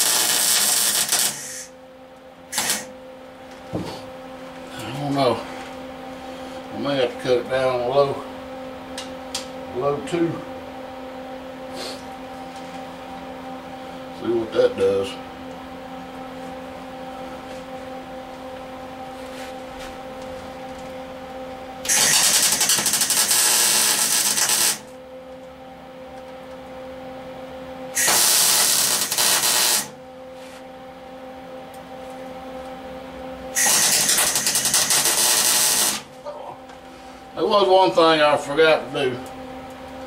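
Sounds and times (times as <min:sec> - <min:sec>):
welding arc crackle: 0:00.0 - 0:01.7, 0:02.5 - 0:02.9, 0:21.8 - 0:24.9, 0:28.0 - 0:30.0, 0:33.6 - 0:36.1
welder machine hum: 0:00.0 - 0:40.0.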